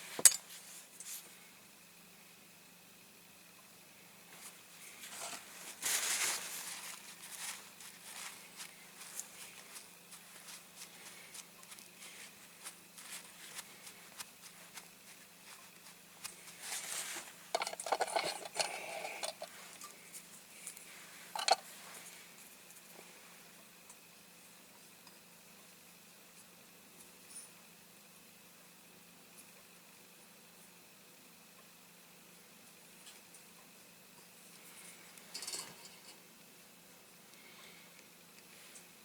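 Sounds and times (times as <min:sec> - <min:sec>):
small tools clicking and tapping: 0:00.1 - 0:01.2, 0:17.5 - 0:20.0, 0:21.4 - 0:21.6, 0:35.2 - 0:36.2
rustling: 0:04.3 - 0:22.3.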